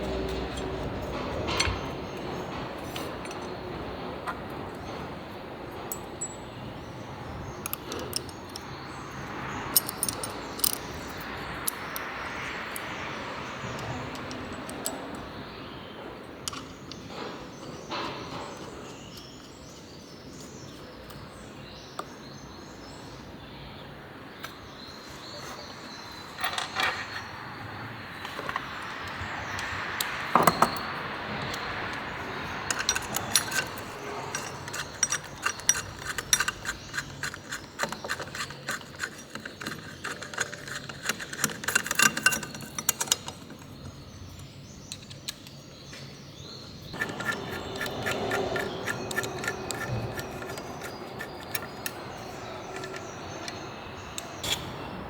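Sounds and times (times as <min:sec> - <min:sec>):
metal tools clinking: 0:00.0 - 0:05.0, 0:05.8 - 0:06.6, 0:07.3 - 0:12.9, 0:13.6 - 0:15.3, 0:26.2 - 0:27.3, 0:28.2 - 0:45.6, 0:46.9 - 0:54.8.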